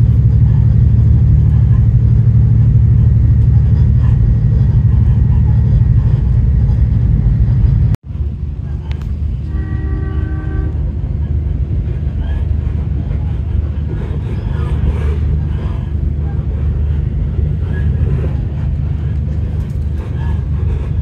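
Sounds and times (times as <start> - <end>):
railcar low rumble: 0.0 - 21.0
train horn: 9.4 - 11.3.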